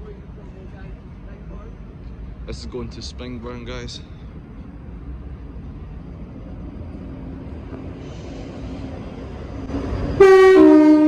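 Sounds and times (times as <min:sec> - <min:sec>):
train rumbling: 0:00.0 - 0:11.0
two-tone train horn: 0:10.2 - 0:11.0.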